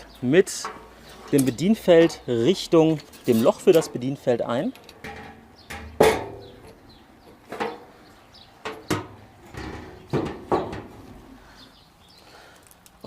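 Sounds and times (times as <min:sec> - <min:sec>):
metal burner knocks and clunks: 0:04.9 - 0:07.9, 0:08.6 - 0:11.2.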